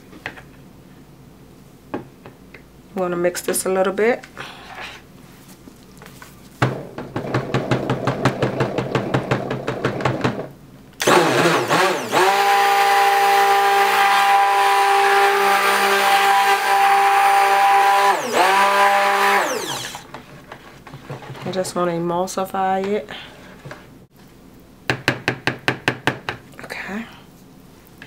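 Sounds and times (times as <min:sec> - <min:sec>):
stick blender whining: 0:11.0 - 0:20.2.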